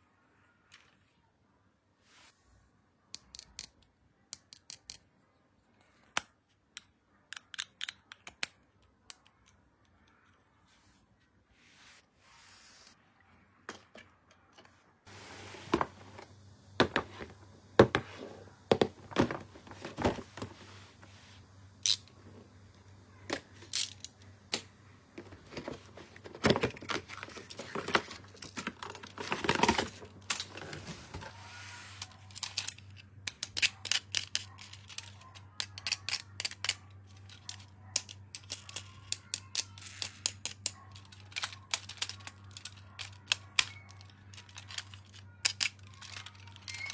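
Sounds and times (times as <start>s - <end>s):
small plastic clicks: 3.1s - 5.1s, 6.0s - 10.4s.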